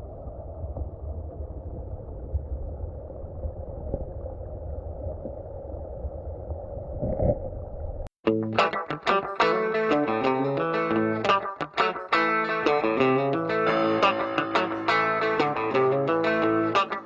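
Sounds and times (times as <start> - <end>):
muffled underwater creek rumble: 0.0 - 8.1
distorted electric guitar music: 8.2 - 17.0.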